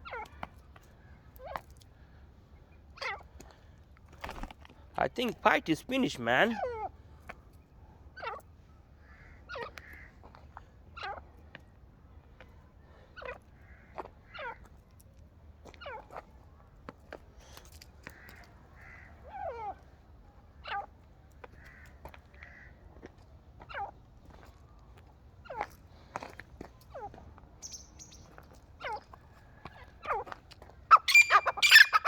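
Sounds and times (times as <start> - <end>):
soft chirps: 27.6 - 28.4, 30.9 - 32.0
fowl calling: 30.9 - 32.0.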